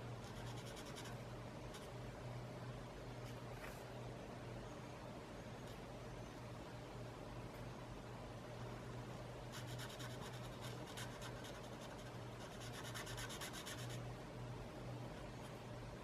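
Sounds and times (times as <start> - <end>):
low steady hum: 0.0 - 16.0
drawing tool scratching paper: 9.5 - 14.0.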